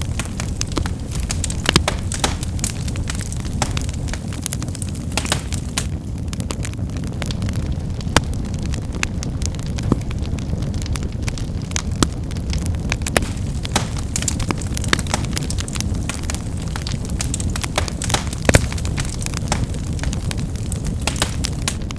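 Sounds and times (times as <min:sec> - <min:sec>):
loud wood pops: 0:00.0 - 0:06.0, 0:12.9 - 0:21.9
firewood crackling and snapping: 0:00.0 - 0:21.9
low rumble of flames: 0:00.0 - 0:21.9.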